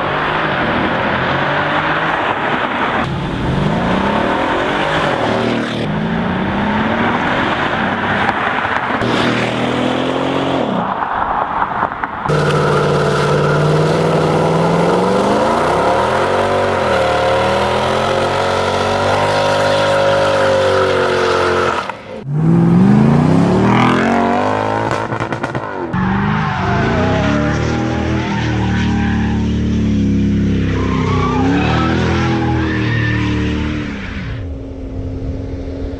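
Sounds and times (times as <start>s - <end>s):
car engine accelerating hard: 12.3s - 34.5s.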